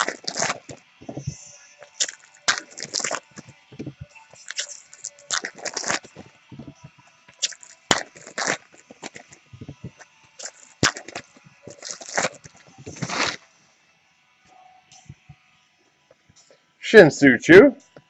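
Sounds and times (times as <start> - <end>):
wrappers tearing and crinkling: 0.0 - 13.5.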